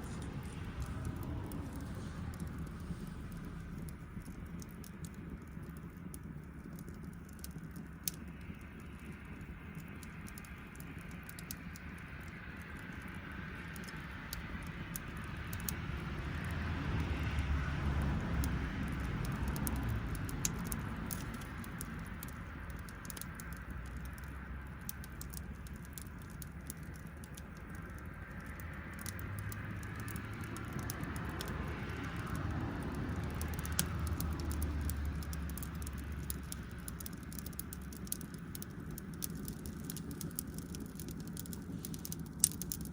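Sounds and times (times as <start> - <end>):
low rumble: 0.0 - 10.8
campfire crackling and popping: 0.0 - 42.9.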